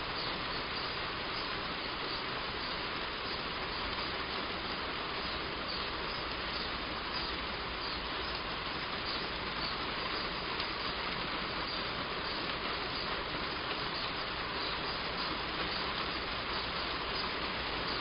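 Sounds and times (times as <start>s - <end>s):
heavy rain on a roof: 0.0s - 18.0s.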